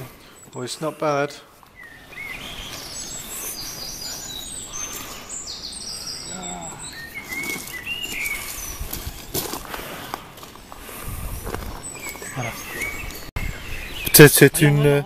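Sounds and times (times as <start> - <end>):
songbirds chirping and trilling: 0.0 - 15.0
steady outdoor hiss: 0.0 - 15.0.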